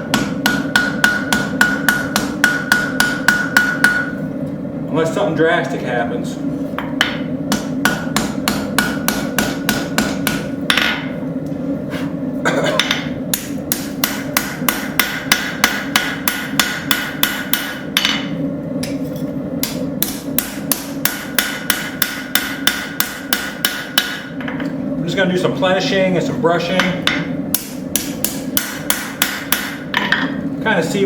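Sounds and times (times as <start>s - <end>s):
steady hum: 0.0s - 31.0s
hammer tapping metal on anvil: 0.1s - 4.2s, 6.8s - 11.1s, 12.8s - 19.0s, 19.6s - 24.7s, 26.7s - 30.4s.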